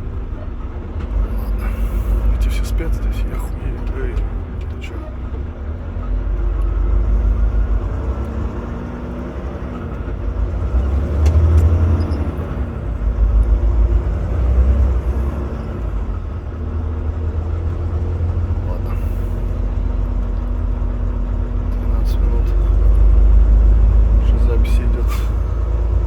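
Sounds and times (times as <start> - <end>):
diesel engine rumble: 0.0 - 26.0.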